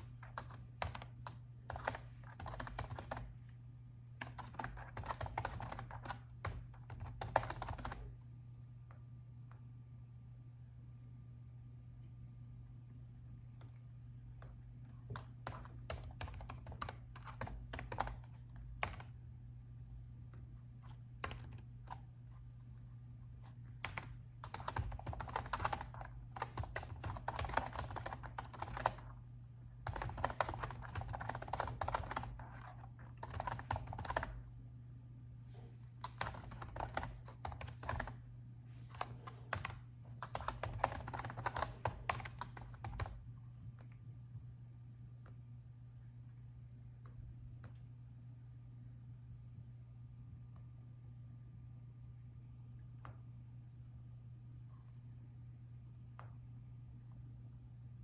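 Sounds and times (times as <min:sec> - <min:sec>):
laptop keyboard typing: 0:00.0 - 0:08.2, 0:15.1 - 0:19.2, 0:20.8 - 0:22.1, 0:23.4 - 0:29.2, 0:29.8 - 0:34.4, 0:36.0 - 0:38.2, 0:38.9 - 0:43.2
steady low hum: 0:00.0 - 0:58.0.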